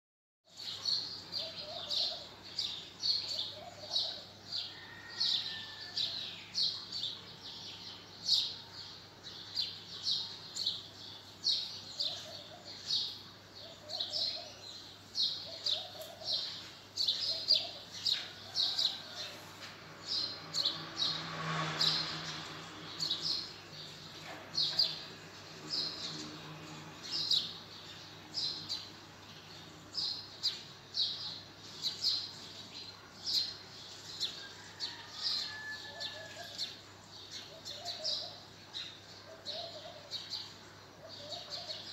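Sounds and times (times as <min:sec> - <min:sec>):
bird chirping: 0:00.5 - 0:19.4, 0:20.0 - 0:41.9.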